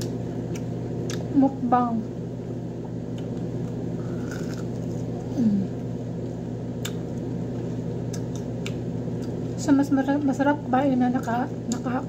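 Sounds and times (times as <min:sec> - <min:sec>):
steady low hum: 0:00.0 - 0:12.0
person chewing crispy chicken: 0:03.1 - 0:05.3
person humming mm: 0:05.2 - 0:05.8.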